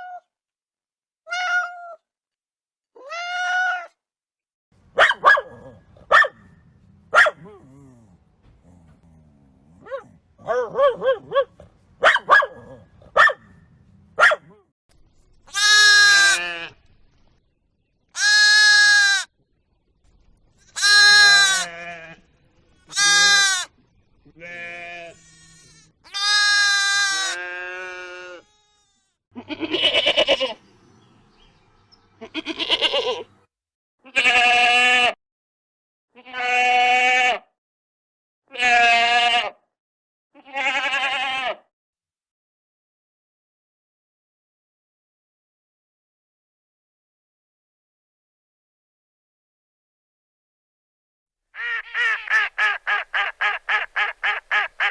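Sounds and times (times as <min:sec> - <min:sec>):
goats and sheep bleating: 0:15.5 - 0:16.8, 0:18.2 - 0:19.3, 0:20.8 - 0:22.3, 0:22.9 - 0:30.6, 0:32.2 - 0:33.4, 0:34.1 - 0:35.2, 0:36.2 - 0:37.4, 0:38.5 - 0:39.6, 0:40.4 - 0:41.6.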